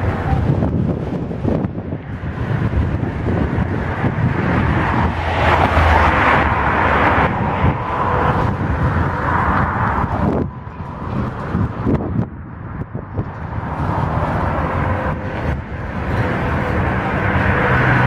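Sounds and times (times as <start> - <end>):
freight train wheels rumbling on rails: 0.0 - 18.0.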